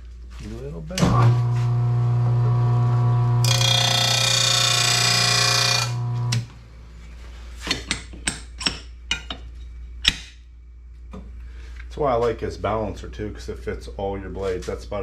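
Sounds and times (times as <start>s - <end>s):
blade sharpener grinding whine: 1.2s - 6.5s.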